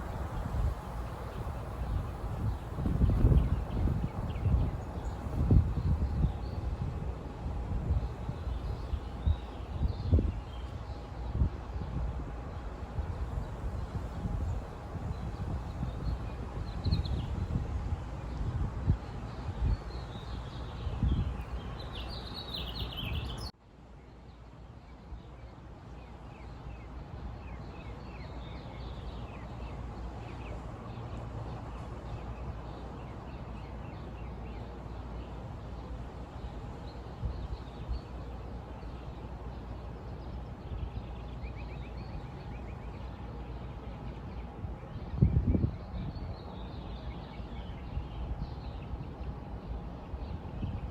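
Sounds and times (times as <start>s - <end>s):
low outdoor rumble: 0.0s - 22.4s
small birds chirping: 19.0s - 23.5s.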